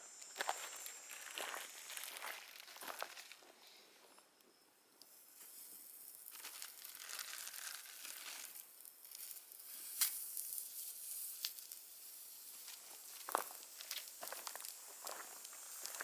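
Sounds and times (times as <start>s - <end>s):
crinkling and rustling: 6.3s - 8.6s.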